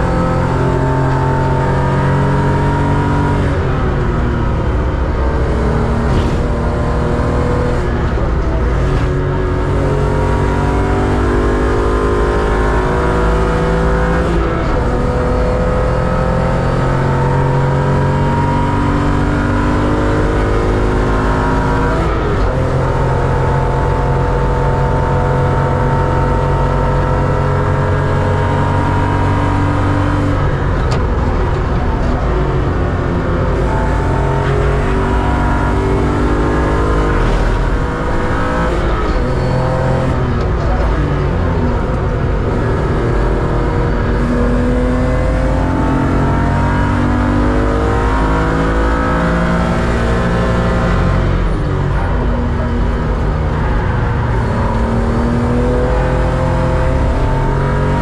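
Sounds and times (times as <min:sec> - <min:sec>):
race car engine accelerating: 0:00.0 - 0:58.0.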